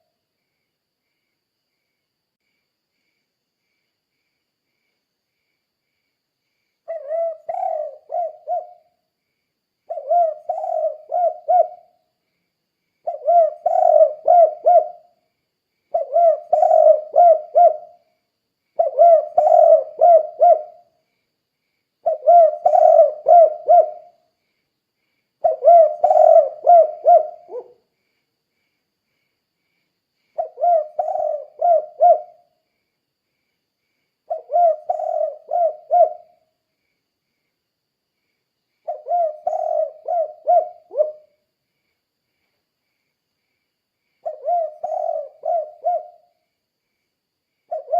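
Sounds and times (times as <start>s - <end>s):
dove cooing: 6.9s - 8.9s, 9.9s - 12.0s, 13.0s - 15.2s, 15.9s - 18.0s, 18.8s - 20.9s, 22.0s - 24.2s, 25.4s - 27.8s, 30.4s - 32.5s, 34.3s - 36.4s, 38.9s - 41.4s, 44.2s - 46.3s, 47.7s - 47.9s.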